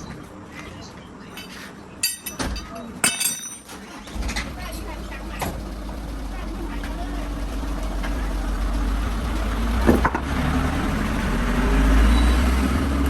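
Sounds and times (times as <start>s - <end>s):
vehicle engine rumbling: 3.7s - 13.0s.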